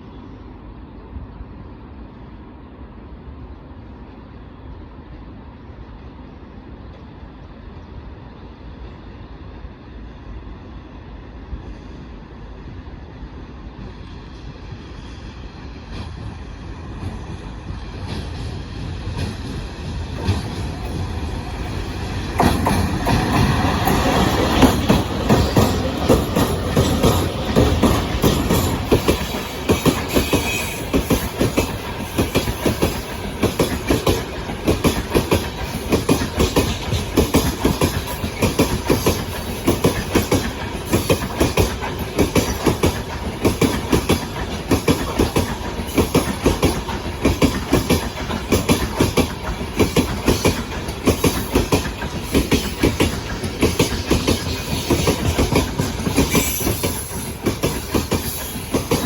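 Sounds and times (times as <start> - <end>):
freight train wheels clattering: 15.8 - 59.0.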